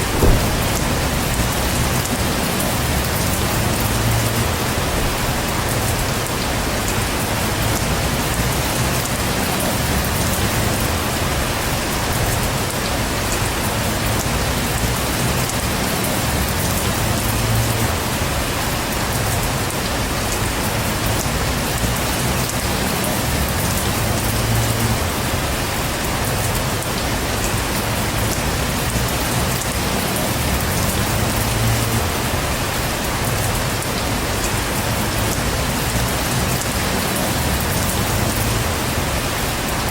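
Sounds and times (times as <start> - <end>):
low rumble: 0.0 - 5.8
heavy rain falling: 0.0 - 39.9.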